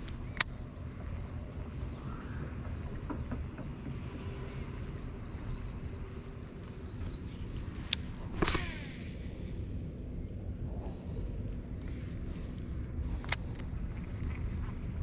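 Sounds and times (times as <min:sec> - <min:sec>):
steady low rumble: 0:00.0 - 0:15.0
bird rising chirps: 0:04.4 - 0:07.6.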